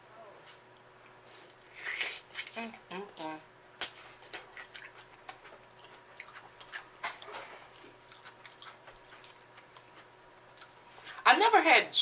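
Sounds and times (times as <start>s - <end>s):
close chewing and biting: 3.8s - 11.2s.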